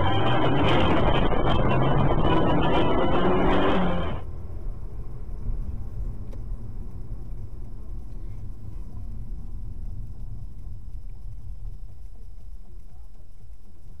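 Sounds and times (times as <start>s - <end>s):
car engine and road noise: 0.0s - 12.8s.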